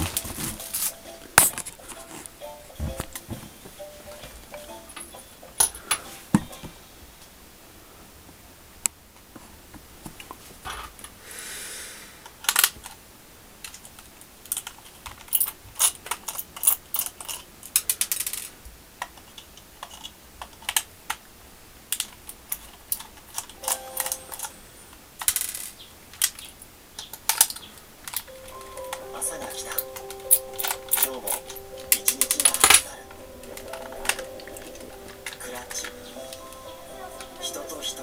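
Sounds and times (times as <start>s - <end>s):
short hiss: 11.2s - 12.3s
small hard objects clicking: 25.2s - 36.5s.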